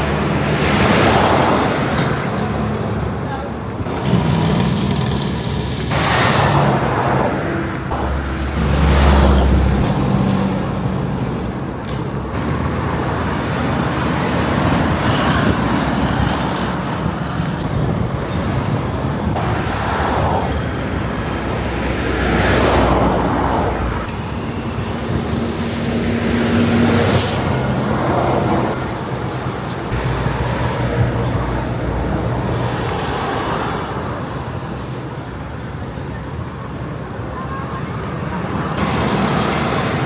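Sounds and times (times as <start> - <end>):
truck engine rumble: 0.0 - 40.0
vehicles rushing past: 0.0 - 40.0.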